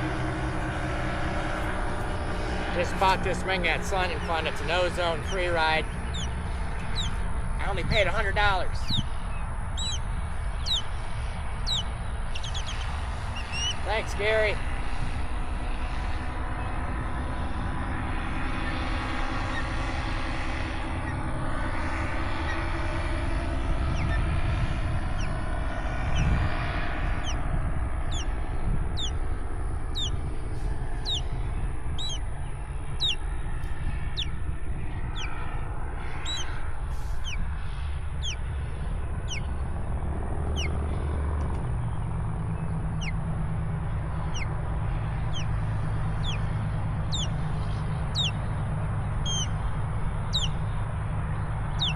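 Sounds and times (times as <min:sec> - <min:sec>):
distant engine hum: 0:00.0 - 0:51.9
steady low rumble: 0:00.0 - 0:51.9
small bird chirping: 0:03.9 - 0:14.2, 0:23.8 - 0:24.4, 0:25.1 - 0:25.4, 0:26.1 - 0:26.4, 0:27.1 - 0:34.4, 0:35.0 - 0:35.4, 0:36.1 - 0:37.5, 0:38.2 - 0:38.5, 0:39.2 - 0:39.6, 0:40.5 - 0:40.8, 0:42.0 - 0:43.2, 0:44.1 - 0:44.6, 0:45.2 - 0:50.8, 0:51.4 - 0:51.9.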